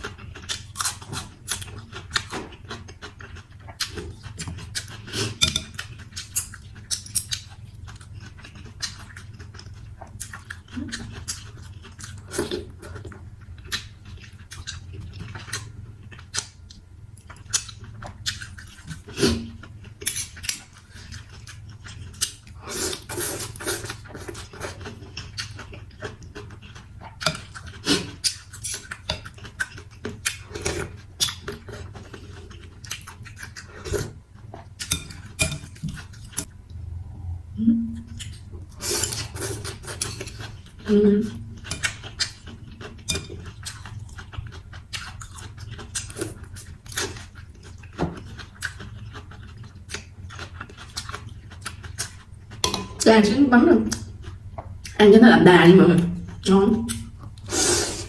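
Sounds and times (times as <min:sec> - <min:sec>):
chewing: 0:00.0 - 0:16.6, 0:17.2 - 0:36.5, 0:38.0 - 0:40.9, 0:41.5 - 0:53.1
utensils clinking against bowl: 0:05.4 - 0:05.9, 0:34.9 - 0:36.0, 0:52.6 - 0:53.1
slurping: 0:57.4 - 0:58.0.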